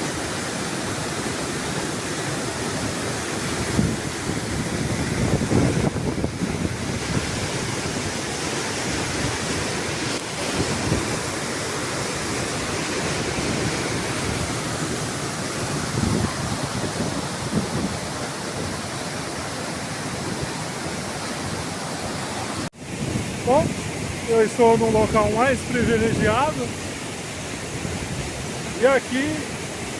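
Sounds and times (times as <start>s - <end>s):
waterfall rushing: 0.0s - 29.9s
wind buffeting microphone: 3.4s - 19.2s.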